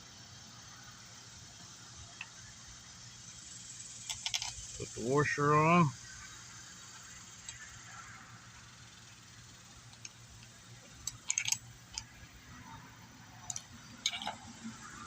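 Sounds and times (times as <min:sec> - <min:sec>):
small metal parts clicking: 0:03.8 - 0:05.0, 0:07.0 - 0:08.7, 0:09.7 - 0:12.7, 0:13.3 - 0:15.0.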